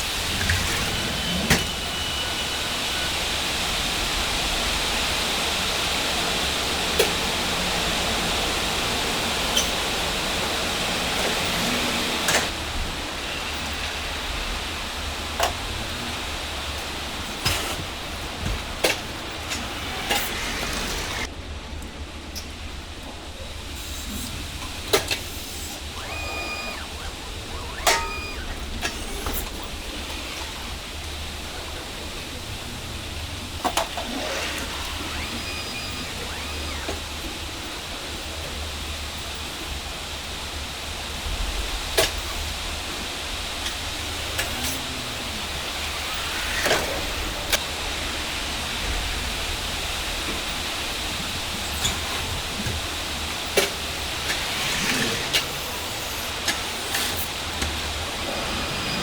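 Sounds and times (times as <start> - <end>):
rushing background noise: 0.0 - 59.0
high beeps: 25.6 - 29.2, 34.9 - 37.2.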